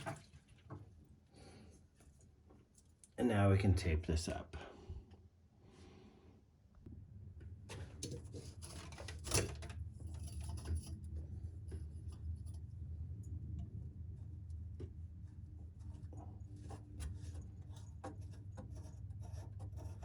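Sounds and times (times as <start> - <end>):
steady low hum: 1.2 - 20.0
small clicks and rubbing: 7.6 - 12.8, 14.5 - 20.0.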